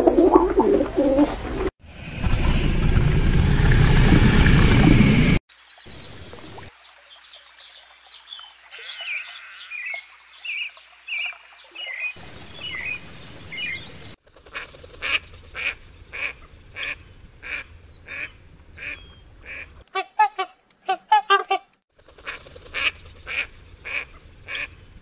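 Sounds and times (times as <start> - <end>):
duck quacking: 14.5 - 24.7.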